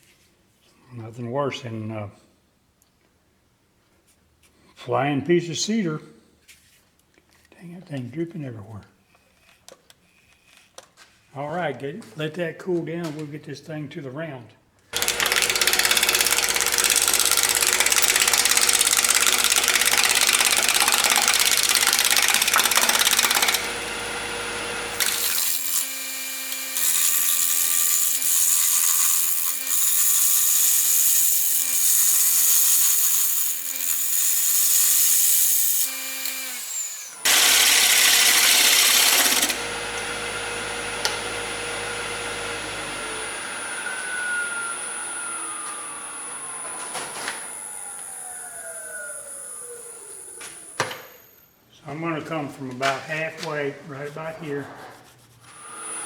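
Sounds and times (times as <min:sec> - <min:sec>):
power tool cutting wood: 0:15.0 - 0:51.4, 0:55.5 - 0:56.0.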